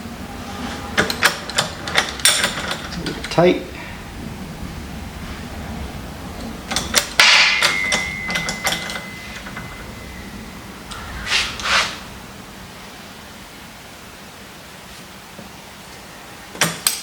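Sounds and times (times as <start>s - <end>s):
ringing metal strike: 6.5s - 13.9s
rubbing swishes: 11.0s - 13.0s.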